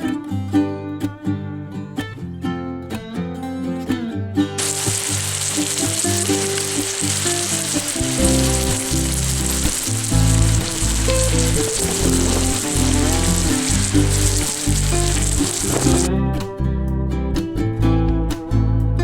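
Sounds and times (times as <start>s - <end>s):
guitar music: 4.6s - 16.1s
steak sizzling in a pan: 4.6s - 16.1s.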